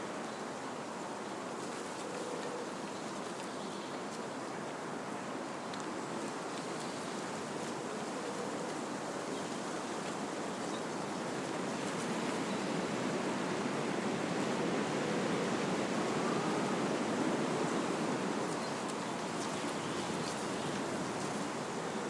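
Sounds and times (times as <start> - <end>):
wind rushing through trees: 9.2 - 22.0.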